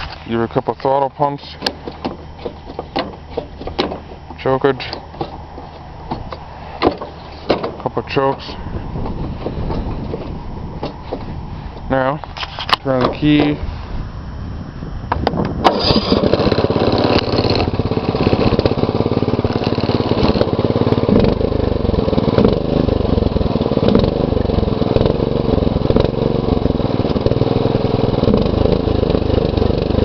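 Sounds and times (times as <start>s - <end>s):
lawn tractor engine running: 0.0s - 13.7s, 15.1s - 30.0s
electric starter cranking engine: 15.6s - 30.0s.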